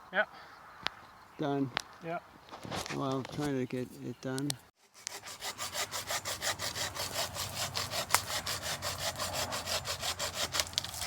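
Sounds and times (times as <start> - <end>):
hand saw cutting branch: 4.8 - 11.0
branch cracking: 10.4 - 11.0.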